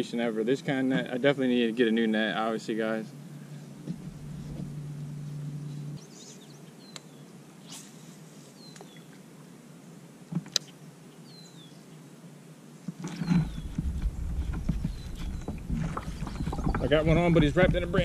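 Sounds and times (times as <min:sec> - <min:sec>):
bird chirping: 0:05.2 - 0:07.4, 0:13.1 - 0:17.8
kayak handling noise: 0:12.9 - 0:18.0
low rumble: 0:13.4 - 0:18.0.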